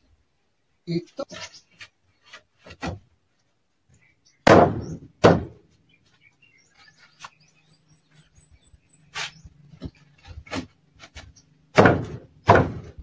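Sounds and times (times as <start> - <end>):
wooden door thunking against frame: 11.8 - 13.0.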